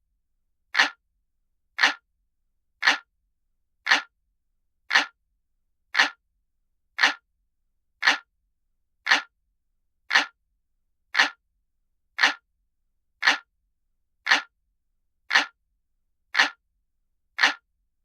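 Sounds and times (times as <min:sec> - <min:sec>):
clock ticking: 0:00.8 - 0:01.0, 0:01.8 - 0:02.0, 0:02.8 - 0:03.1, 0:03.9 - 0:04.1, 0:04.9 - 0:05.2, 0:06.0 - 0:06.2, 0:07.0 - 0:07.2, 0:08.0 - 0:08.3, 0:09.1 - 0:09.3, 0:10.1 - 0:10.4, 0:11.2 - 0:11.4, 0:12.2 - 0:12.4, 0:13.2 - 0:13.5, 0:14.3 - 0:14.5, 0:15.3 - 0:15.6, 0:16.4 - 0:16.6, 0:17.4 - 0:17.6.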